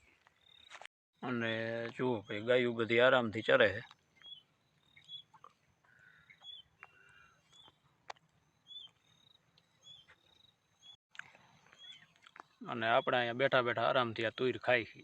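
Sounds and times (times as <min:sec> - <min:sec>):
faint bird chirps: 0:03.4 - 0:13.3.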